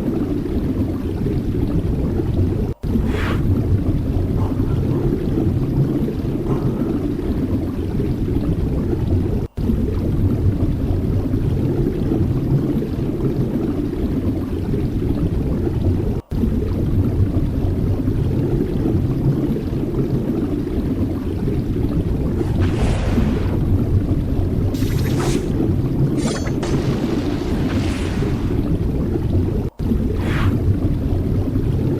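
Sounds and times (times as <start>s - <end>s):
sea surf rumble: 2.8s - 4.0s, 22.2s - 24.8s.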